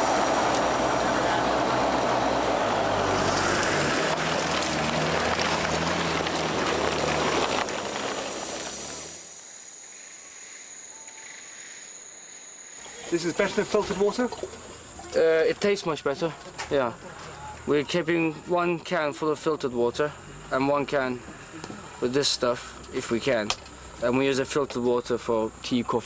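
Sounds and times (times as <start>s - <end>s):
diesel engine revving hard: 0.0s - 9.3s
insects: 4.2s - 26.0s.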